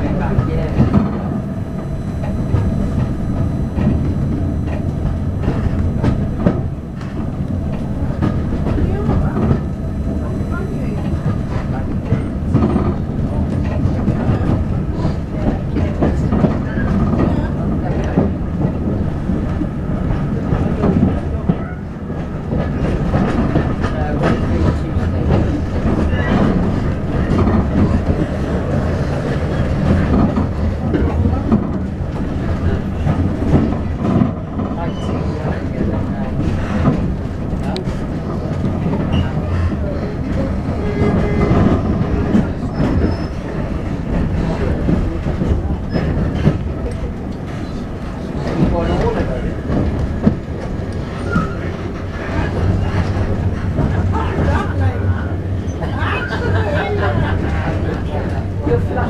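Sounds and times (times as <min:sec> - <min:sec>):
railway coach rumble: 0:00.0 - 0:59.0.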